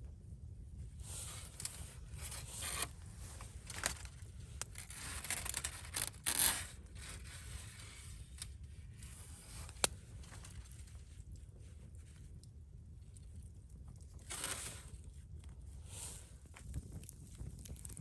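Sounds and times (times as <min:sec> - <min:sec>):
scraping and rustling handling: 0:01.2 - 0:12.1.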